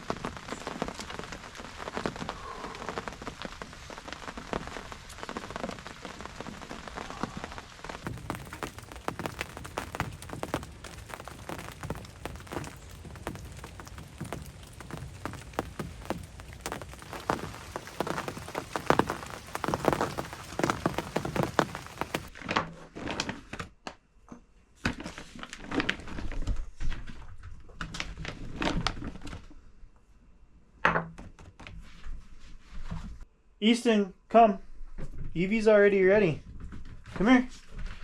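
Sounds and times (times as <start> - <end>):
rain pattering on a blind: 0.0 - 22.4
knocks and thumps: 8.0 - 22.3.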